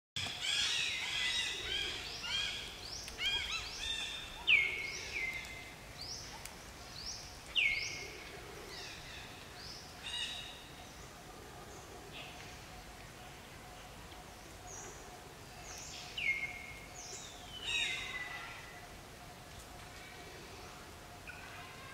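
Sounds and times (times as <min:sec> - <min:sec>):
birds calling: 0:00.2 - 0:11.1.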